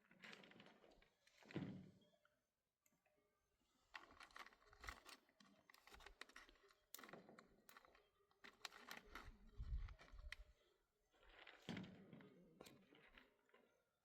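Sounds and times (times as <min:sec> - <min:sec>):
faint clicks and knocks: 0:03.9 - 0:10.6.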